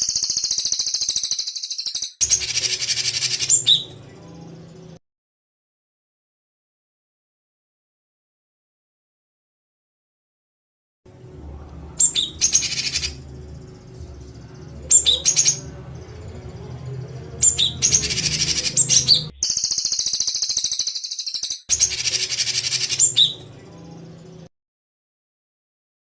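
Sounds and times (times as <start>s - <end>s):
songbird rattling call: 0.0s - 3.7s, 19.4s - 23.2s
low steady hum: 11.1s - 19.4s
sharp whistled notes: 17.4s - 23.4s.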